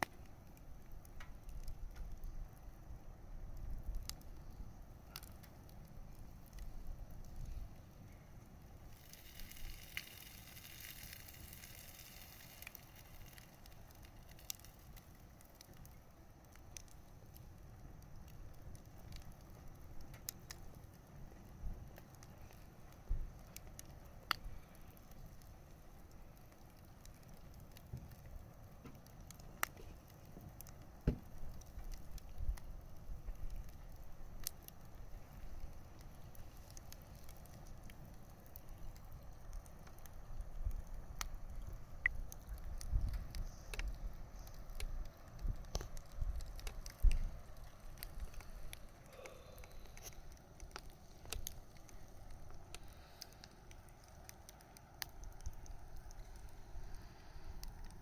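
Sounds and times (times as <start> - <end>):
bonfire crackling and popping: 0.0 - 58.0
fire hiss: 0.0 - 58.0
low rumble of flames: 0.0 - 58.0.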